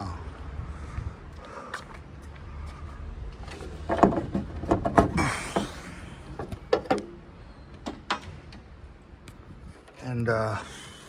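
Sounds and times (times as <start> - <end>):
sharp knocks and clicks: 3.5 - 5.8, 6.4 - 7.2.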